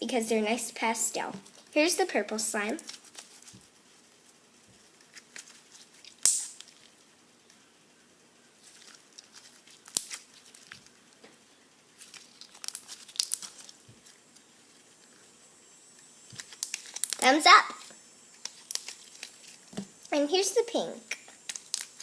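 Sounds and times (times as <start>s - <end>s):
slime crackling and popping: 5.1s - 7.0s, 8.6s - 11.0s, 12.0s - 14.5s, 16.2s - 19.8s, 21.1s - 22.0s.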